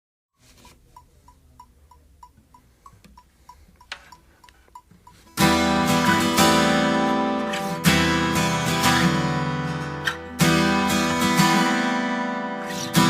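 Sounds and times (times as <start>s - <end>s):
faint even ticking: 0.8s - 5.7s
acoustic guitar strum: 5.3s - 13.0s.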